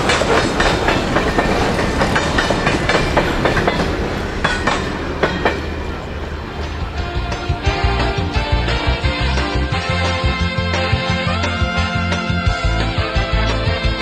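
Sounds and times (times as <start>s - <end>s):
train wheels clacking over rail joints: 0.0s - 9.0s
freight train rumble: 0.0s - 14.0s.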